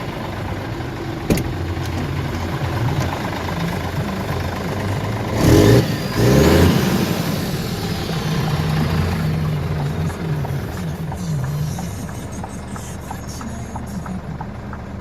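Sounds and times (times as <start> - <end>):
diesel truck engine idling and revving: 0.0 - 15.0.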